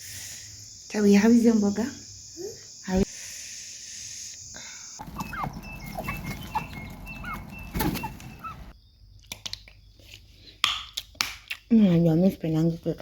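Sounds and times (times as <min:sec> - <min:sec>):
crickets chirping: 0:00.0 - 0:10.3
chickens clucking: 0:05.0 - 0:08.7.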